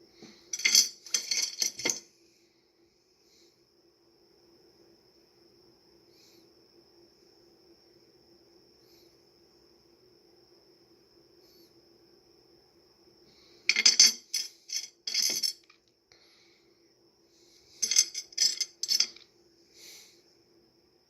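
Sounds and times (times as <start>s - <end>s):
faint high-pitched whine: 0.0s - 21.0s
stones clinking and rattling: 0.5s - 2.0s, 13.7s - 15.8s, 17.8s - 19.2s.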